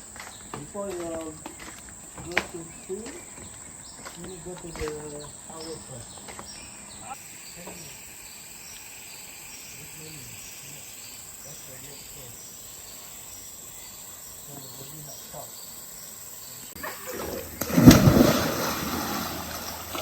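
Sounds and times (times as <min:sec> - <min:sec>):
rainforest insects droning: 0:00.0 - 0:20.0.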